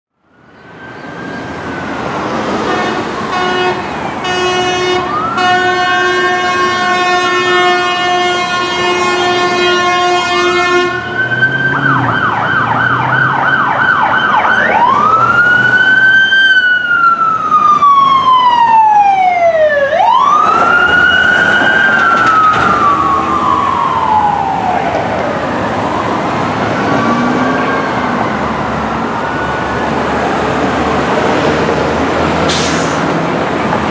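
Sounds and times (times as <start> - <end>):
emergency siren wailing and yelping: 0.3 - 32.4
long horn blast: 2.6 - 12.1.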